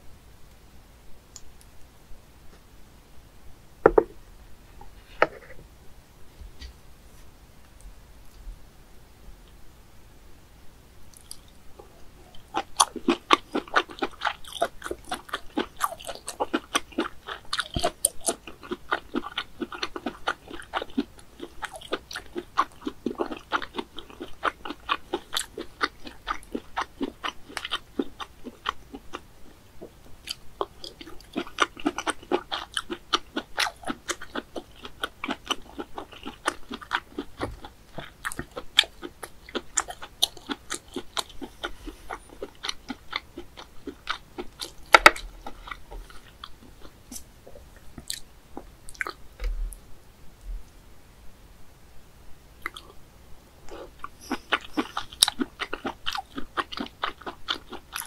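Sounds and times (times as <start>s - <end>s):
person chewing crunchily: 12.3s - 49.6s, 52.6s - 53.0s, 53.7s - 58.0s.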